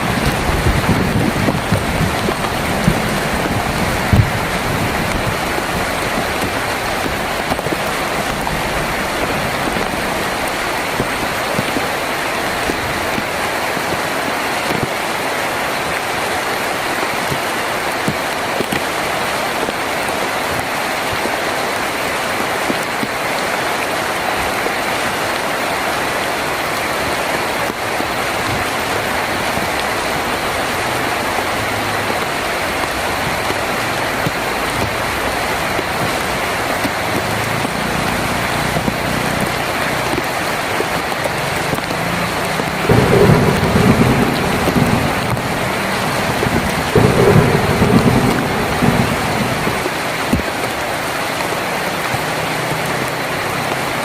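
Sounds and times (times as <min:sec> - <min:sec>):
thunder rumble: 0:00.0 - 0:15.0, 0:27.4 - 0:51.2
heavy rain on a tin roof: 0:00.0 - 0:54.0.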